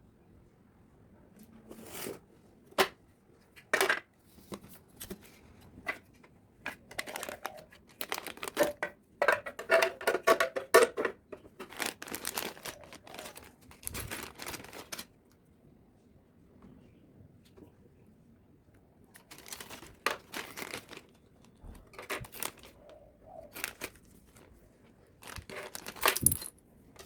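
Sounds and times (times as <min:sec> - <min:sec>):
packaging rustling and tearing: 0:07.0 - 0:08.8, 0:11.6 - 0:15.1, 0:19.2 - 0:22.8, 0:23.4 - 0:24.5, 0:25.2 - 0:26.5.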